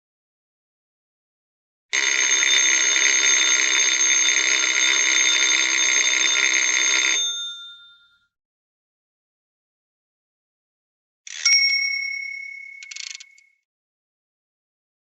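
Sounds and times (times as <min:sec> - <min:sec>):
electric alarm bell ringing: 0:01.9 - 0:08.3, 0:11.3 - 0:13.5.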